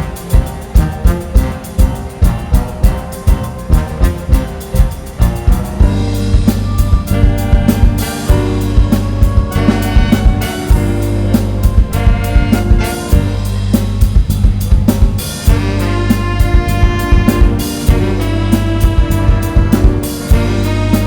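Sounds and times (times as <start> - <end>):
band playing film music: 0.0 - 21.0
drum kit beat: 0.0 - 21.0
strong bass line: 0.0 - 21.0
sustained horn-like tones: 0.0 - 21.0.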